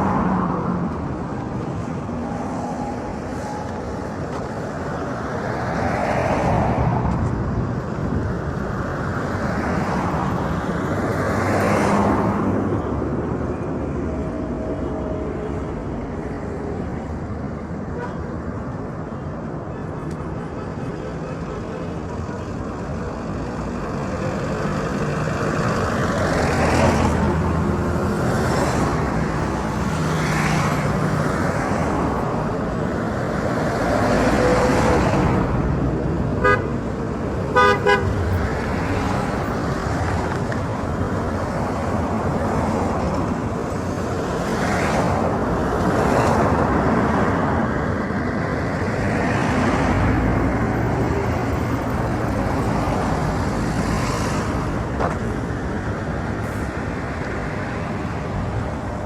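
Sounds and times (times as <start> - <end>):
road traffic rumble: 0.0 - 59.0
car horn toots: 36.4 - 36.7, 37.5 - 38.1.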